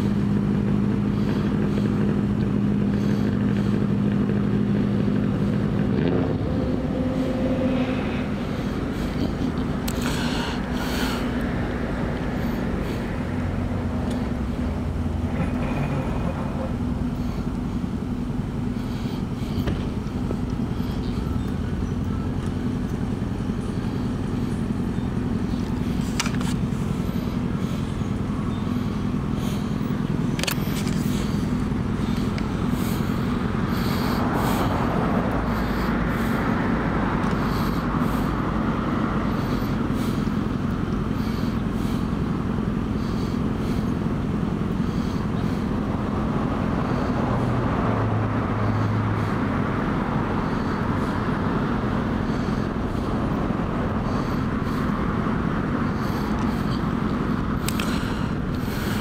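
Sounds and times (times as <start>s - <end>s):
vehicle engine idling: 0.0s - 59.0s
passing vehicle rushing: 4.3s - 17.8s, 23.1s - 41.9s, 44.6s - 59.0s
sharp clicks: 30.4s - 31.1s.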